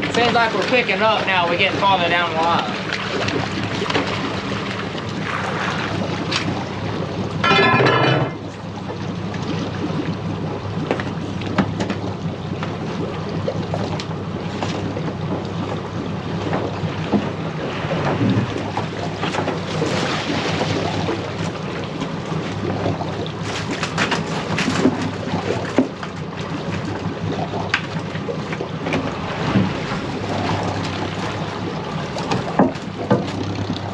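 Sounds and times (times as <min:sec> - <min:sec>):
boat motor running: 0:00.0 - 0:33.9
water noise: 0:00.0 - 0:33.9
wind: 0:00.0 - 0:33.9.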